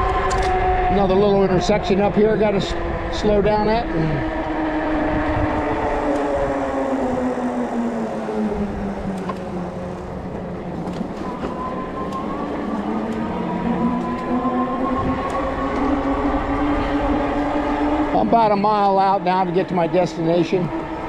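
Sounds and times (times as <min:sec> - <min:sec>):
electric bike motor whining: 0:00.0 - 0:21.0
tyres rumbling on pavement: 0:00.0 - 0:21.0.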